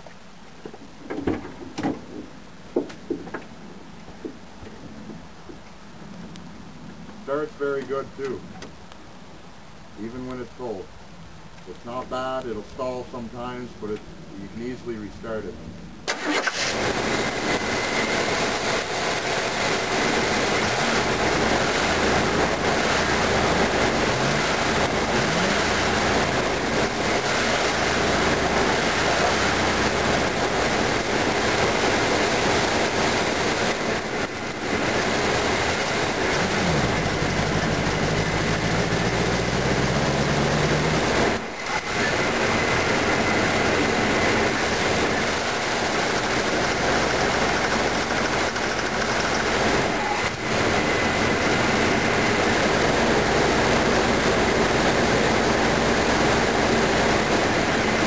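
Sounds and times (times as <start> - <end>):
car engine revving with clatter: 16.1 - 58.0.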